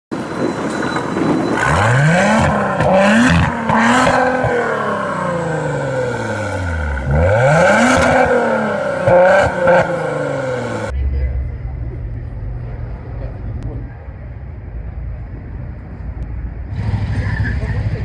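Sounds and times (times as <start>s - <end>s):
car engine revving: 1.6s - 10.9s, 16.7s - 18.0s.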